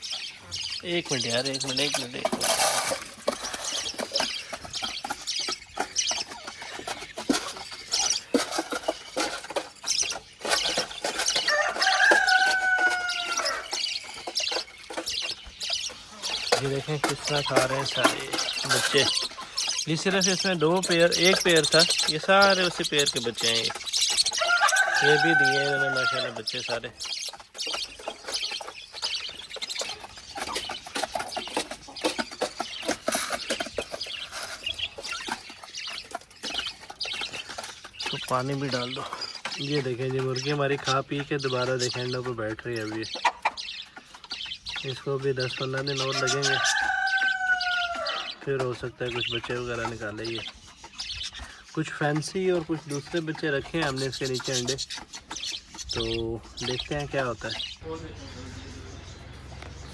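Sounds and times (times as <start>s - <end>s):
beaks pecking at feed: 0.0s - 59.9s
chickens clucking: 0.0s - 59.9s
chicks cheeping: 0.0s - 59.9s.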